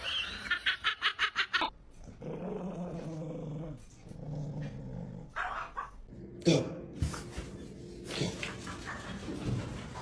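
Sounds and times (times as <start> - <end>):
dog growling: 2.2 - 5.6.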